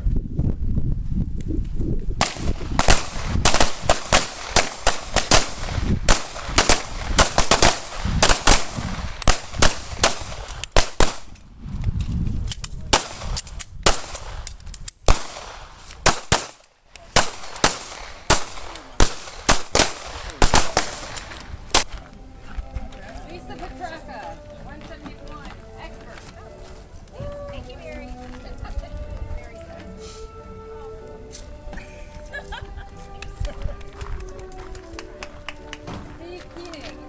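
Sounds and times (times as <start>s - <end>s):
pistol shots: 2.2s - 11.4s, 12.9s - 14.5s, 15.1s - 22.0s.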